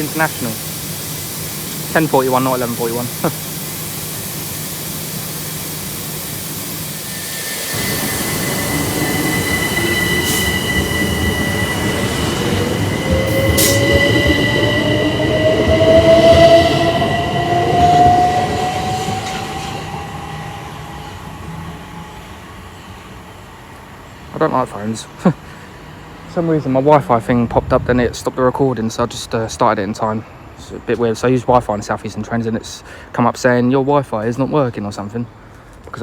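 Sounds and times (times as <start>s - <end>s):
train traction motors whining: 0.0s - 27.4s
rail noise: 0.0s - 36.0s.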